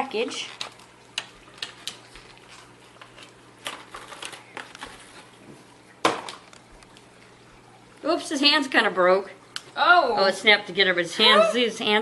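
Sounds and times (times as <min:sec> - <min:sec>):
plastic packaging crinkling: 0:00.2 - 0:05.4.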